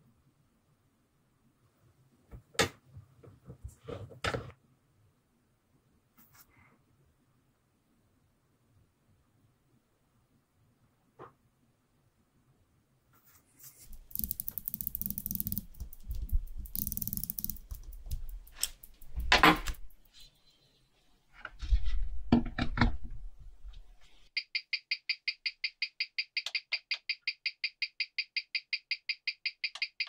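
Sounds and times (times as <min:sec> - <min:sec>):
small tools clicking on watch parts: 0:13.8 - 0:20.0.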